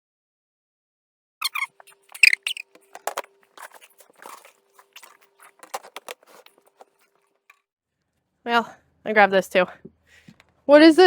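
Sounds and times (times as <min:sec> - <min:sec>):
dry kibble clicking and crunching: 0:01.4 - 0:07.2.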